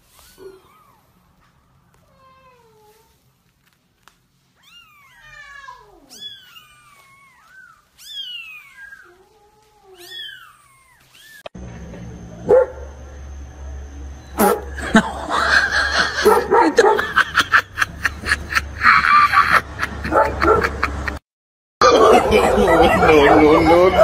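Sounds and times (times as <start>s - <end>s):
kittens mewing: 4.6s - 11.5s.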